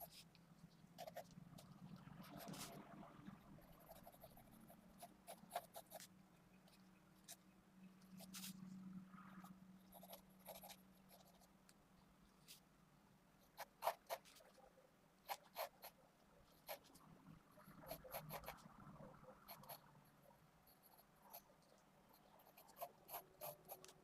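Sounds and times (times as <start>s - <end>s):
pencil scratching on paper: 1.0s - 6.1s, 8.2s - 8.7s, 9.9s - 11.5s, 13.4s - 14.6s, 15.2s - 17.0s, 17.6s - 18.7s, 19.4s - 19.9s, 20.6s - 24.0s.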